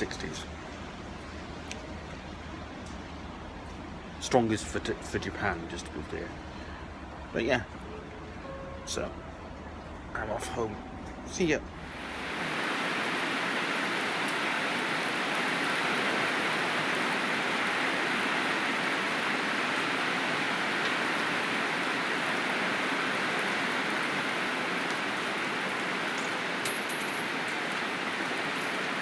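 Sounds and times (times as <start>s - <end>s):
heavy rain hissing: 11.7s - 29.0s.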